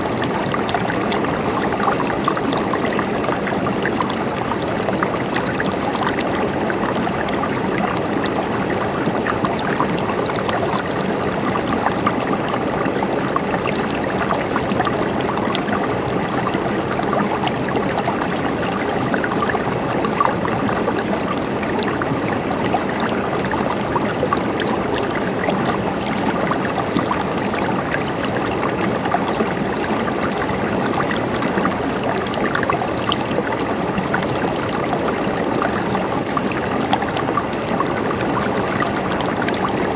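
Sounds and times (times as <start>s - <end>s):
stream flowing and trickling: 0.0s - 39.9s.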